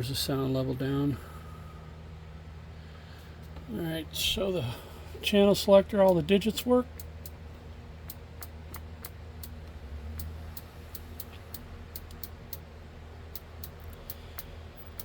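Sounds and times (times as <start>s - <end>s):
faint low hum: 0.0s - 15.0s
channel selector detent clicks: 5.9s - 15.0s.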